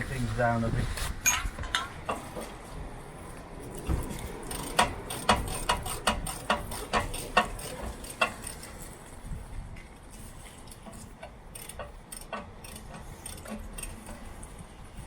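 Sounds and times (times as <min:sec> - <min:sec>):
ratchet spanner clicking: 0:04.4 - 0:08.8, 0:10.7 - 0:14.5.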